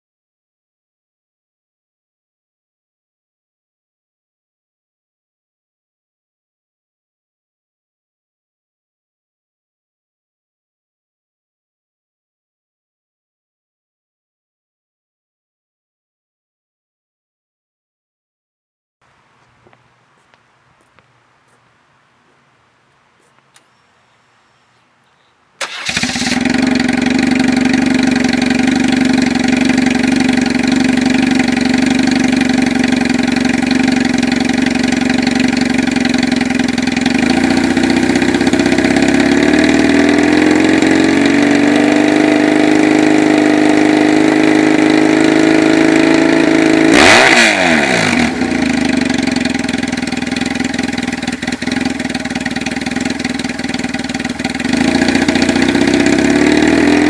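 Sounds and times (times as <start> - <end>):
motorcycle engine idling and revving: 19.0 - 57.0.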